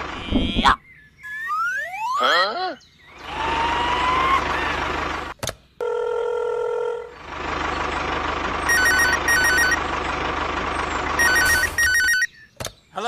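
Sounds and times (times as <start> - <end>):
engine rumble: 0.0 - 1.2, 2.8 - 12.9
telephone ringing: 5.8 - 7.0, 8.7 - 9.8, 11.2 - 12.3
steady beep: 8.7 - 9.8, 11.2 - 12.3.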